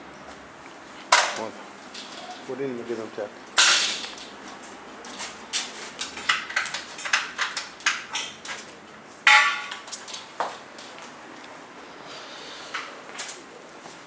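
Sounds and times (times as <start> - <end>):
loud metallic clang: 3.6 - 4.2, 9.3 - 9.8.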